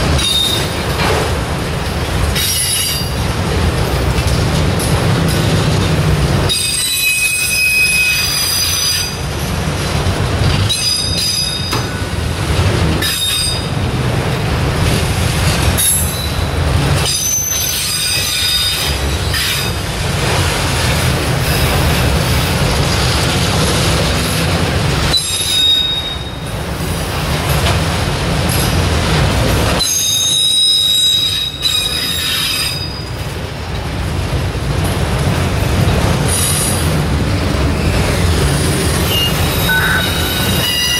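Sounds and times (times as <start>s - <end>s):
train wheels rumbling on rail: 0.0s - 40.9s
wheel squeal: 6.5s - 9.2s, 25.1s - 26.4s, 29.8s - 33.1s, 37.7s - 40.9s.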